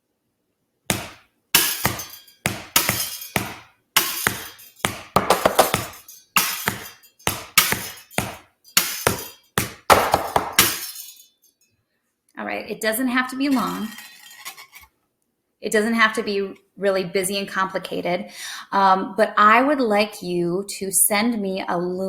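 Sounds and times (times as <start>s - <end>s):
household objects tapped in a beat: 0.9s - 10.8s.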